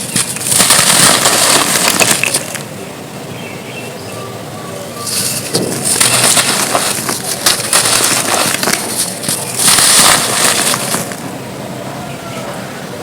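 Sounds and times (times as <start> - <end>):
dirt crunching and crumbling: 0.0 - 2.7, 5.0 - 11.4.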